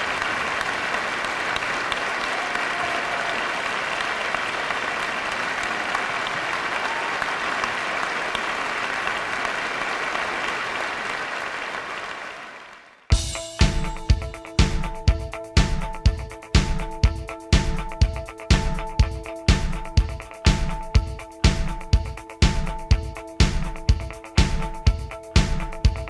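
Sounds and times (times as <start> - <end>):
audience applauding: 0.0 - 13.1
rock song with drums: 13.1 - 26.0.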